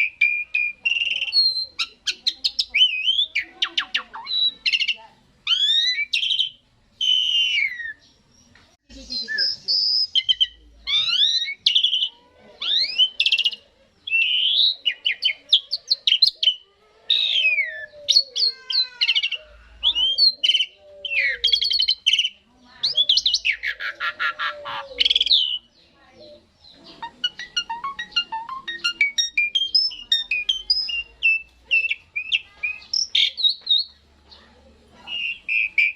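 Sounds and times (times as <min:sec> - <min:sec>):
starling singing: 0:00.0 - 0:35.9.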